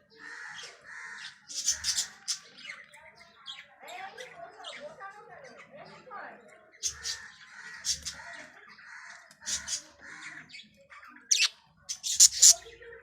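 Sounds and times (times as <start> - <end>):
budgies squawking: 0.2 - 2.5, 6.8 - 8.4, 9.3 - 10.4, 11.3 - 12.8.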